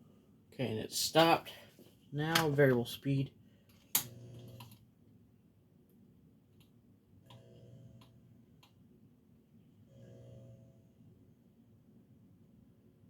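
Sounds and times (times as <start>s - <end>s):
low electrical hum: 0.0s - 13.0s
fan speed control clicks: 3.9s - 4.8s.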